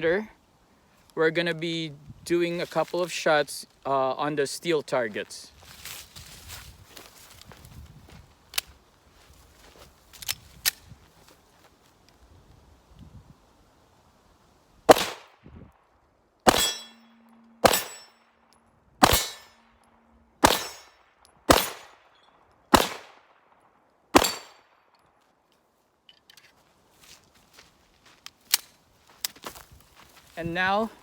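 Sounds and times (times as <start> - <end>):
pistol shots: 14.9 - 15.3, 16.5 - 18.1, 19.0 - 19.6, 20.4 - 22.0, 22.7 - 23.3, 24.1 - 24.6
steel targets clanging: 16.5 - 18.2, 19.0 - 19.6, 20.4 - 20.9, 24.2 - 24.6.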